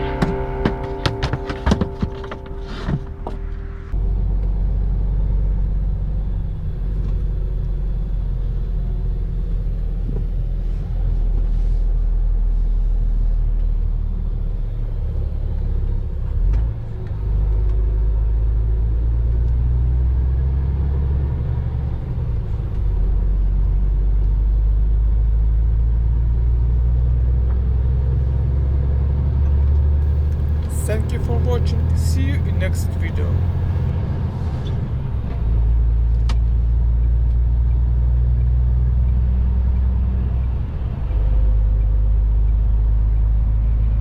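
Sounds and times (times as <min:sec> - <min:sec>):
truck engine rumble: 0:30.0 - 0:33.9
road noise: 0:30.0 - 0:35.5.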